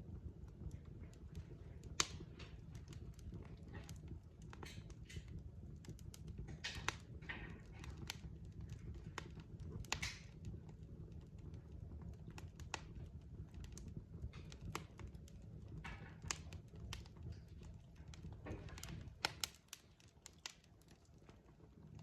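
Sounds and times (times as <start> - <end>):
fire pops and snaps: 0.0 - 22.0
low rumble of flames: 0.0 - 22.0
wood fire crackling: 0.0 - 22.0
fire hissing: 0.9 - 10.5, 15.9 - 20.6.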